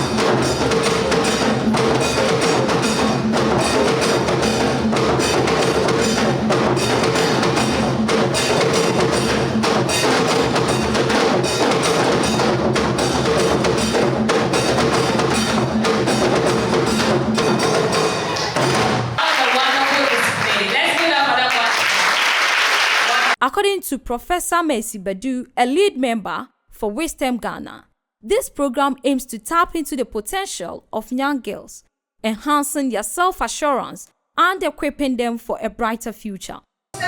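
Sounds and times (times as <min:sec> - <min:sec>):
percussion ensemble drumming: 0:00.0 - 0:23.4.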